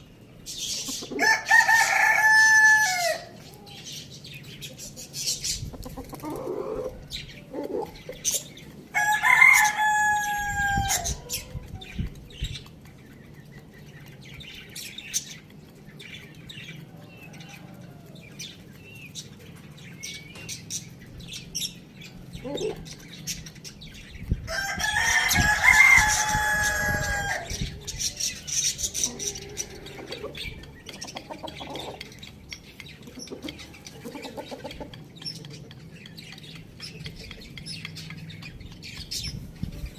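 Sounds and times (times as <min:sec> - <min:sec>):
chicken clucking and chirping: 0:00.0 - 0:39.9
rooster crowing: 0:01.2 - 0:03.3, 0:08.9 - 0:11.5, 0:24.5 - 0:27.6.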